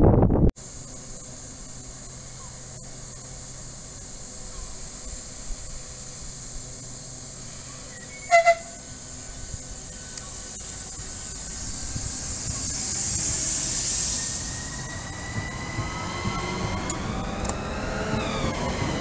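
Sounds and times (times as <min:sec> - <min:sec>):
train equipment hiss and hum: 0:00.0 - 0:19.0
train horn toots: 0:08.1 - 0:08.9.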